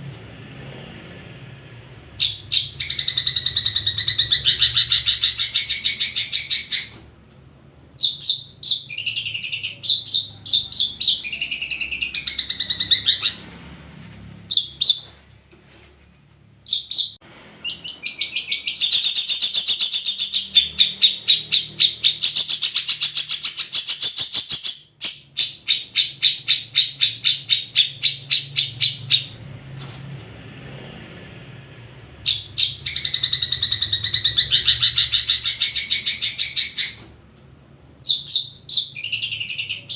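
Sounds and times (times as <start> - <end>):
shrike chattering song: 2.1 - 7.0.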